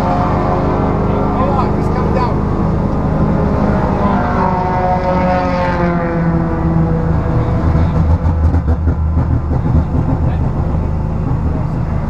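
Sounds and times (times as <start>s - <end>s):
race car engine idling: 0.1s - 12.0s.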